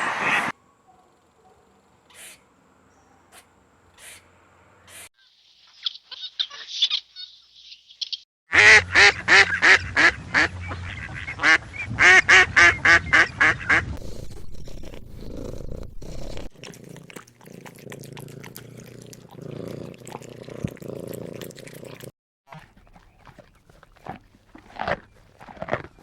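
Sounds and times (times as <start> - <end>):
duck quacking: 8.5 - 14.0.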